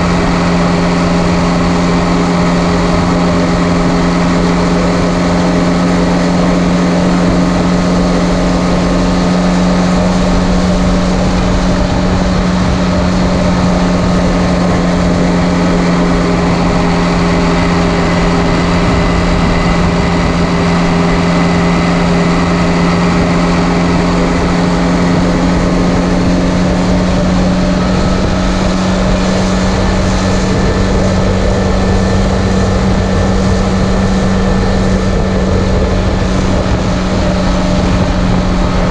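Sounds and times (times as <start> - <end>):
diesel tractor engine exhaust drone: 0.0 - 38.9.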